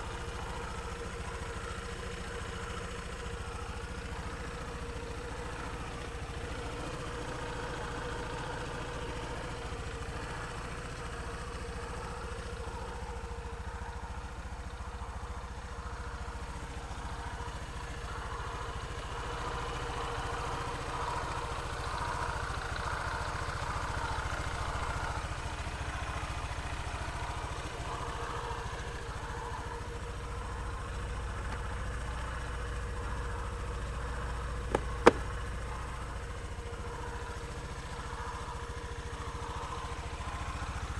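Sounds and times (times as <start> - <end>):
scooter engine idling: 0.0 - 40.9.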